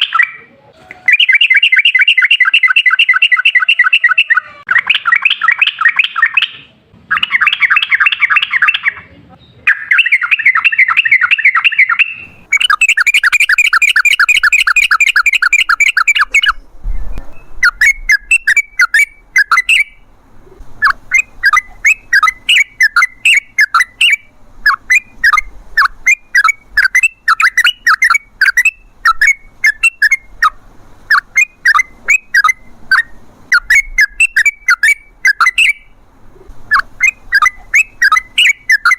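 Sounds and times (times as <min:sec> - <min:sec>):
bird singing bubbling trills: 0:09.7 - 0:38.9.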